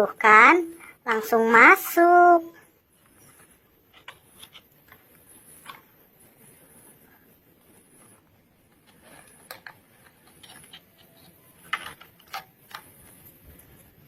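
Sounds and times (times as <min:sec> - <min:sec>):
plastic toy parts clicking: 0:03.9 - 0:05.9, 0:08.7 - 0:13.7.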